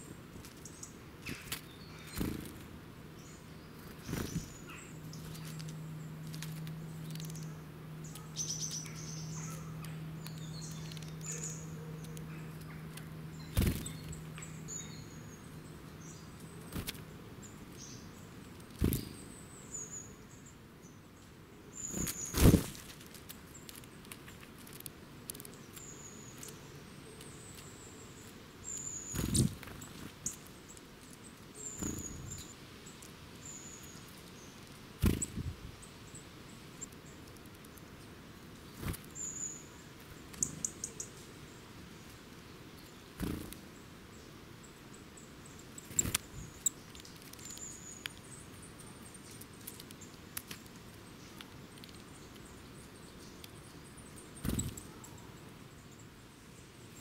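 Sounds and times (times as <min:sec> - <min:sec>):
bird wing flutter: 0:00.4 - 0:02.7, 0:03.8 - 0:07.3, 0:13.5 - 0:14.2, 0:18.7 - 0:19.2, 0:21.8 - 0:25.4, 0:29.1 - 0:30.4, 0:31.8 - 0:32.4, 0:35.0 - 0:35.6, 0:38.7 - 0:39.2, 0:43.2 - 0:43.6, 0:45.8 - 0:47.6, 0:54.4 - 0:54.9.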